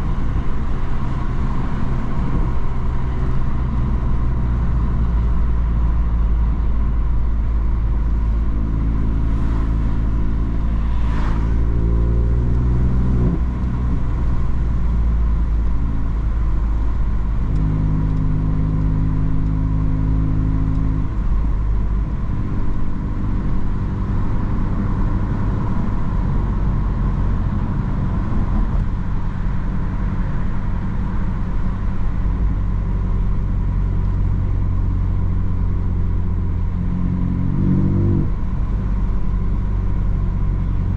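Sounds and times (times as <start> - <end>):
road noise: 0.0 - 40.9
car engine revving: 8.1 - 31.0.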